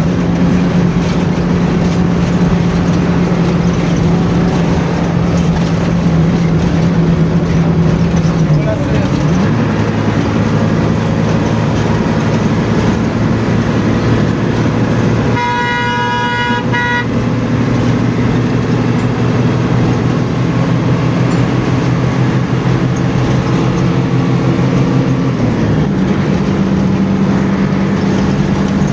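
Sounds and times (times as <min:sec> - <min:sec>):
bus engine running: 0:00.0 - 0:28.9
road noise: 0:00.0 - 0:28.9
vehicle horn blast: 0:15.2 - 0:17.4.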